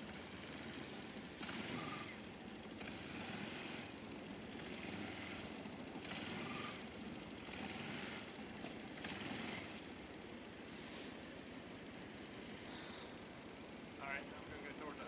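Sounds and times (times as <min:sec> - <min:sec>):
atv engine rumbling: 0:00.0 - 0:15.0.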